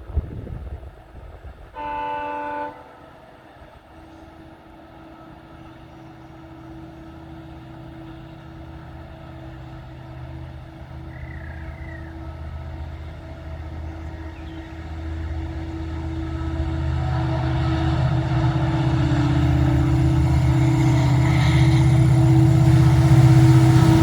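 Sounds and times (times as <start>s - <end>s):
train rumble and hum: 0.0s - 24.0s
train horn chord: 1.7s - 3.2s, 7.0s - 24.0s.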